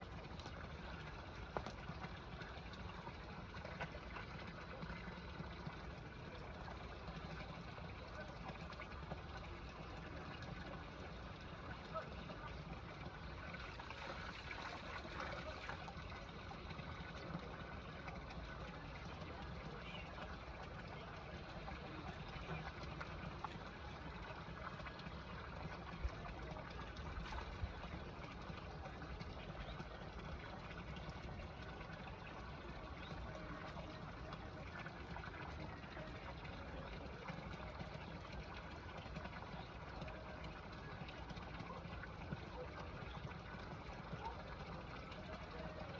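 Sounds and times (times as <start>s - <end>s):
running water trickling: 0.0s - 45.9s.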